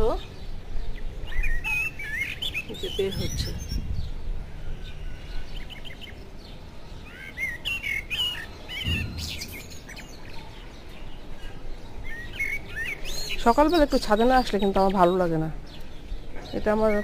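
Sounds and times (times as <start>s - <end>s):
small birds chirping: 0.0s - 17.0s
brief low rumble: 8.8s - 10.6s.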